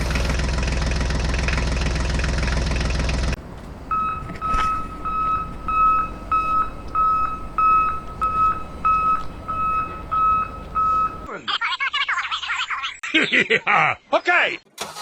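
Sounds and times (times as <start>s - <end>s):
reversing alarm beeping: 3.9s - 11.3s.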